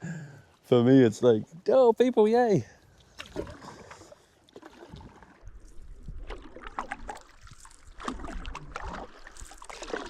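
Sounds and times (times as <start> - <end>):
water lapping against boat: 2.9 - 10.0
paddle strokes in water: 3.0 - 10.0.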